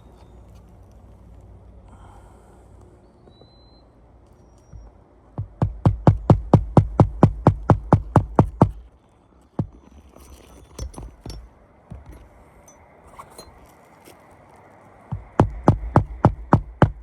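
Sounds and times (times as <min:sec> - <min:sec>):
rapid hammer blows: 0:05.4 - 0:08.8, 0:15.1 - 0:17.0.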